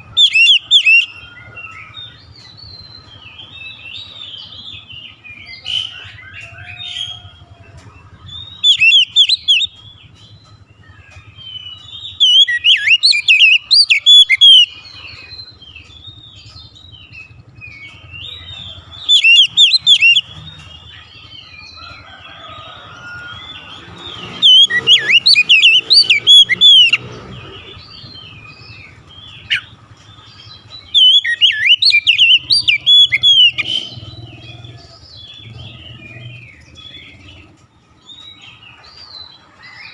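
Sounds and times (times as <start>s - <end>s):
bird singing whistled phrases: 0.0s - 3.1s, 8.3s - 9.8s, 11.5s - 15.5s, 19.0s - 20.3s, 23.6s - 27.0s, 30.6s - 34.0s
bird chirps and calls: 0.0s - 39.9s.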